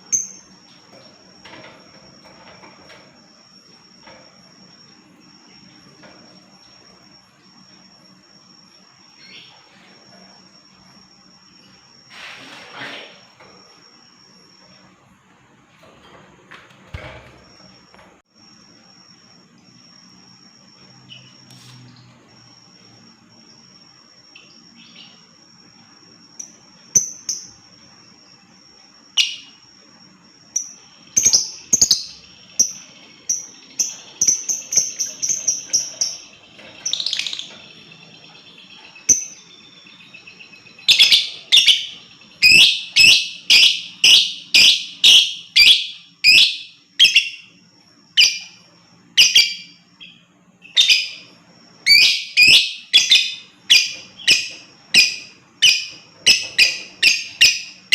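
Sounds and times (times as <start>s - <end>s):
lovebird chirping: 30.6s - 47.6s, 48.2s - 57.9s.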